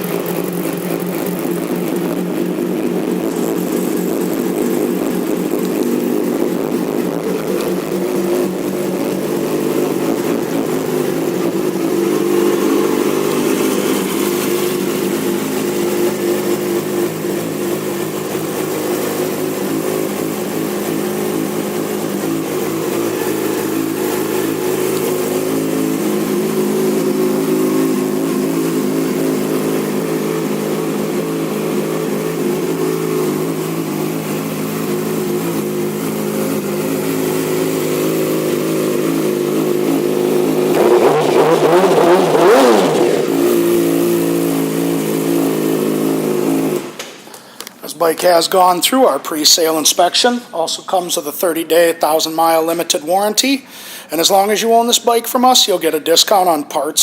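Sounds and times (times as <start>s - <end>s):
motorcycle engine revving: 0.0s - 47.5s
motorcycle engine idling: 0.0s - 47.6s.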